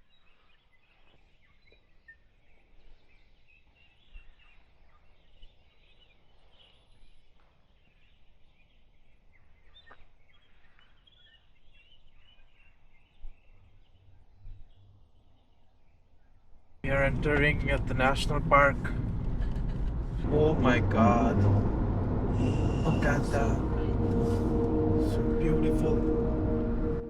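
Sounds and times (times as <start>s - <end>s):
low steady rumble: 16.8s - 27.0s.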